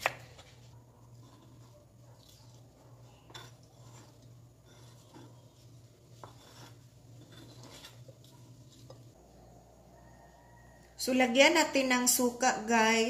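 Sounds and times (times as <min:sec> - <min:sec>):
knife scraping cutting board: 0:00.0 - 0:09.2.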